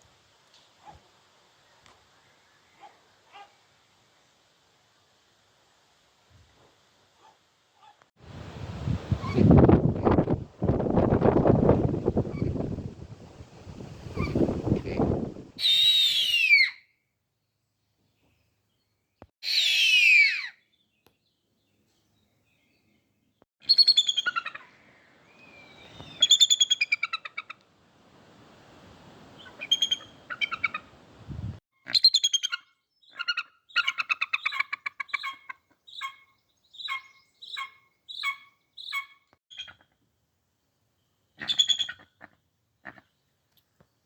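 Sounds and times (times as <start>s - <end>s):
bird of prey calling: 23.6s - 27.5s, 29.4s - 30.9s, 31.9s - 39.8s.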